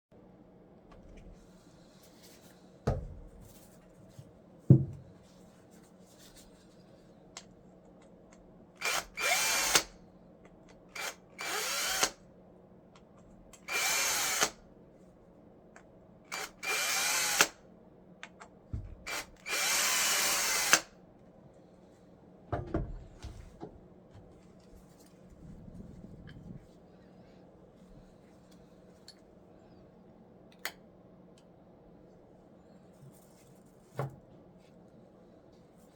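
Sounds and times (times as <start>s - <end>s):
power drill whining: 8.8s - 9.9s, 11.0s - 12.2s, 13.7s - 14.6s, 16.3s - 17.5s, 19.1s - 20.9s.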